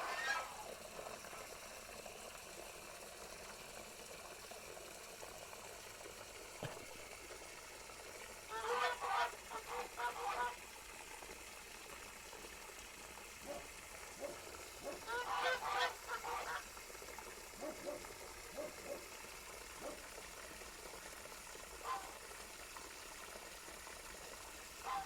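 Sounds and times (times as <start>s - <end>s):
geese honking: 8.5s - 10.5s, 15.1s - 16.6s.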